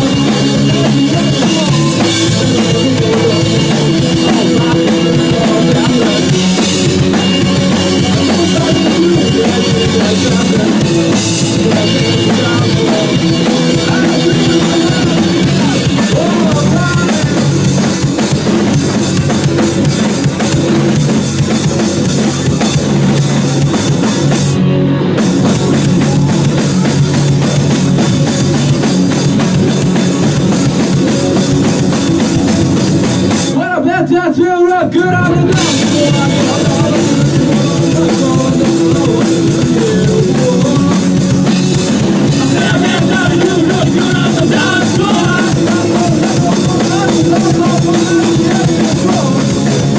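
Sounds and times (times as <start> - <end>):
drum kit beat: 0.0 - 49.9
rock band playing instrumental: 0.0 - 49.9.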